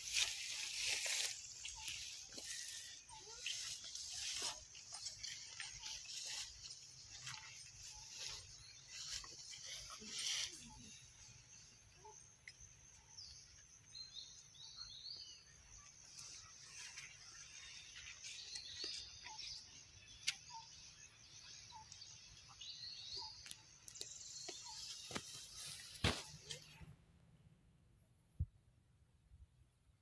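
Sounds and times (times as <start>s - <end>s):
steady high hiss: 0.0s - 12.0s
small birds chirping: 0.0s - 26.9s.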